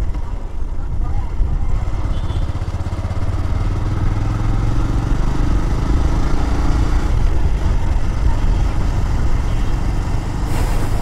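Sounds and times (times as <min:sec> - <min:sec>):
motorcycle engine accelerating: 0:01.7 - 0:10.4.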